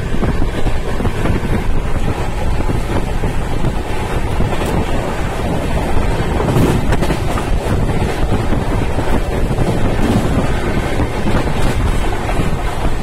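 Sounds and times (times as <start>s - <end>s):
train wheels rumbling on rails: 0.0s - 13.0s
wind buffeting microphone: 0.0s - 13.0s.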